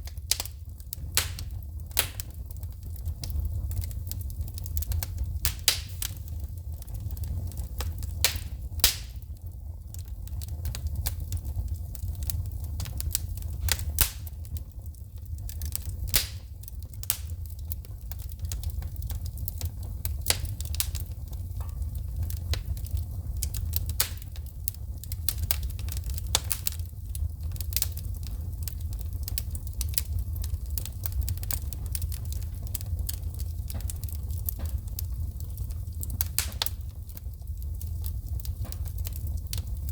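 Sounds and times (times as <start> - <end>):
low rumble of flames: 0.0 - 39.9
wood fire crackling: 0.0 - 39.9
sparks popping: 1.2 - 2.4, 4.9 - 6.4, 7.6 - 9.3, 12.7 - 14.5, 16.1 - 17.3.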